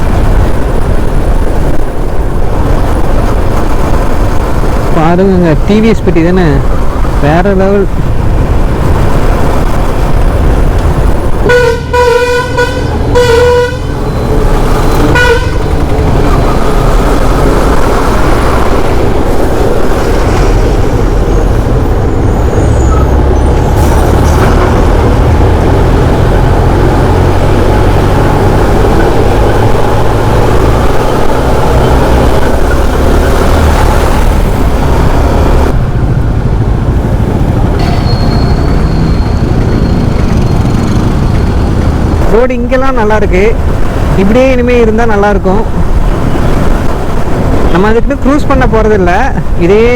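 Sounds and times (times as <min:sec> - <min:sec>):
motorcycle road and wind noise: 0:00.0 - 0:49.9
vehicle horn honking: 0:11.4 - 0:14.3, 0:15.0 - 0:15.8, 0:37.8 - 0:38.6.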